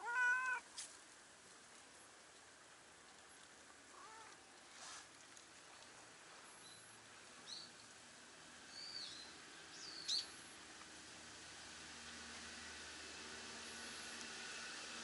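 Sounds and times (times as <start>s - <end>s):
faint outdoor hiss: 0.0s - 15.0s
bird chirps and whistled calls: 8.7s - 10.3s.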